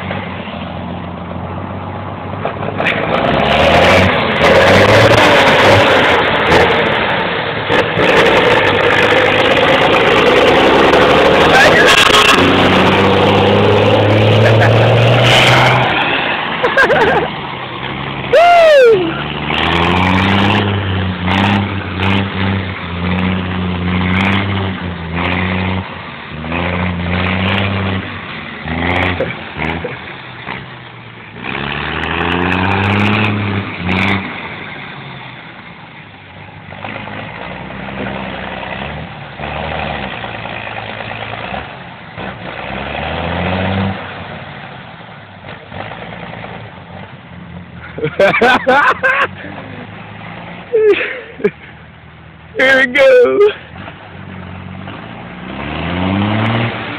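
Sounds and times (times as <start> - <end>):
army truck engine revving: 0.0 - 56.9
knocks and rattles over bumps: 2.2 - 3.4.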